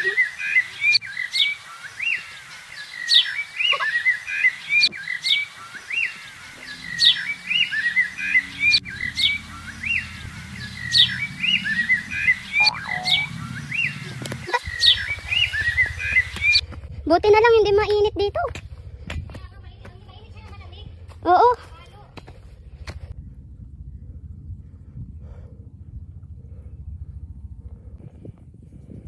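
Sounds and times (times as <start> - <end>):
songbird singing: 0.0 - 16.8.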